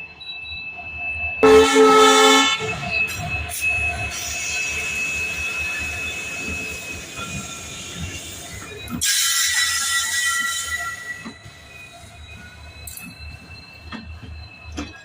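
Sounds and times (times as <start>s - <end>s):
train running on rails: 0.0s - 15.0s
high wheel squeal: 0.3s - 15.0s
train horn: 1.4s - 3.0s.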